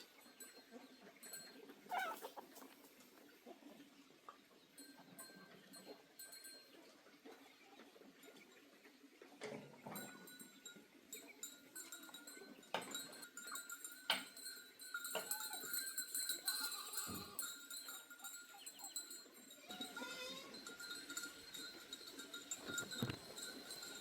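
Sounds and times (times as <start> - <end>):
animal calls: 0.7 - 2.8
scattered clicks and knocks: 14.0 - 14.4, 22.6 - 24.0.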